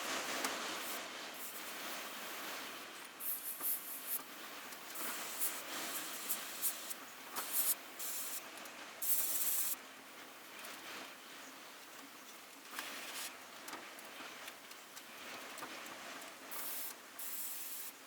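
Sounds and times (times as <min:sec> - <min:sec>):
airbrush hissing spurts: 0:00.8 - 0:04.2, 0:04.9 - 0:08.4, 0:09.0 - 0:09.8, 0:16.5 - 0:17.9.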